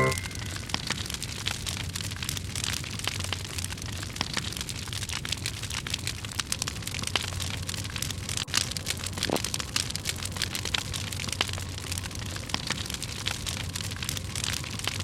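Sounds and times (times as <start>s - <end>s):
low steady hum: 0.0s - 0.9s
campfire crackling and popping: 0.0s - 15.0s.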